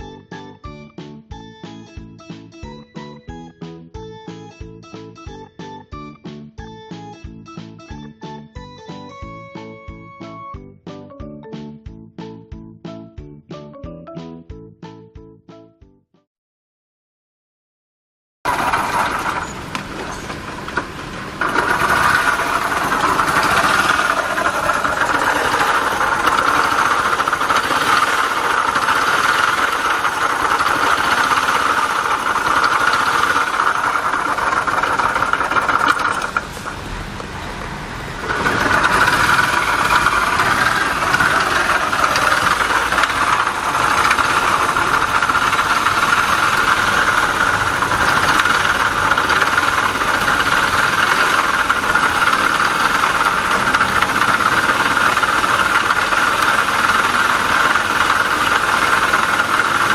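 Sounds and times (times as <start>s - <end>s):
high binding gearbox noise: 18.5s - 59.9s
small engine running: 18.5s - 59.9s.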